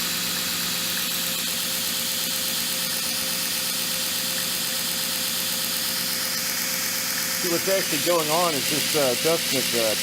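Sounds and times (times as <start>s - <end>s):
belt grinder motor humming: 0.0s - 10.0s
abrasive belt hissing: 5.8s - 10.0s.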